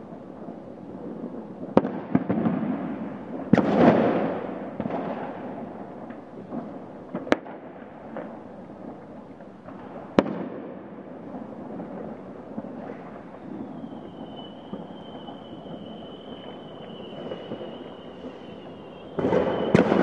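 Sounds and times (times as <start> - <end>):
firecrackers banging and crackling: 0.0 - 20.0
loud firework bangs with echo: 1.2 - 8.4, 9.7 - 20.0.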